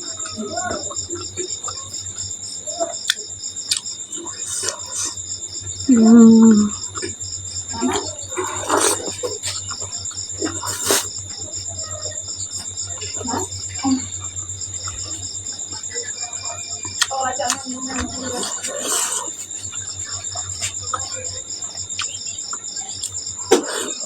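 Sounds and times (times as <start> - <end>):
crickets chirping: 0.0 - 24.0
mouth chewing with wet smacks: 1.2 - 5.8, 16.8 - 23.9
person humming: 5.9 - 6.8.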